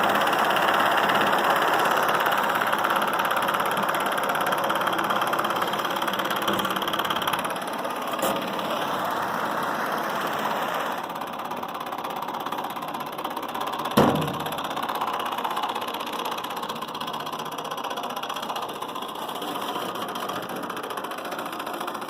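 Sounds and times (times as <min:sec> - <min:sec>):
stirling engine clattering: 0:00.0 - 0:22.0.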